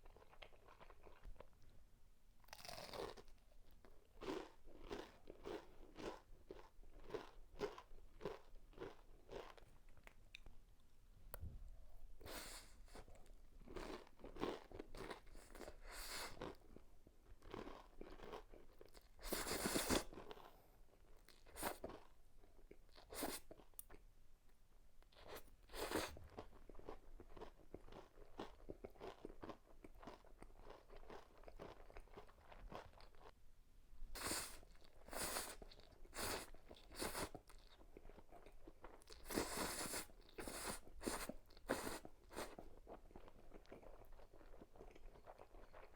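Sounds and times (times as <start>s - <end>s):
crunchy bites and chewing: 2.5s - 3.4s.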